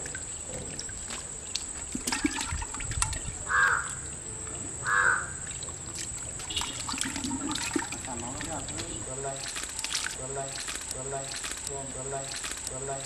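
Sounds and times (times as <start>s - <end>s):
harsh caw-like bird calls: 3.5s - 4.0s, 4.8s - 5.5s.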